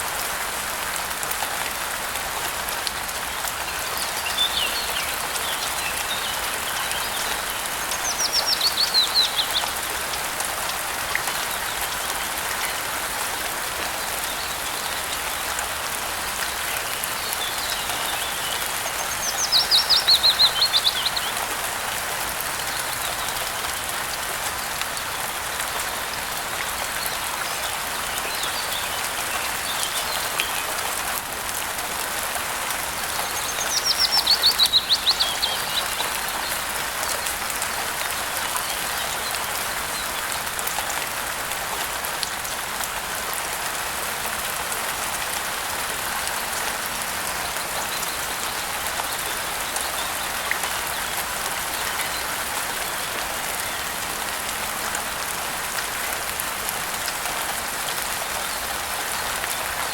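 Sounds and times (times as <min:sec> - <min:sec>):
rain falling: 0:00.0 - 0:59.9
songbird singing: 0:03.6 - 0:10.1, 0:16.5 - 0:21.5, 0:32.9 - 0:40.4.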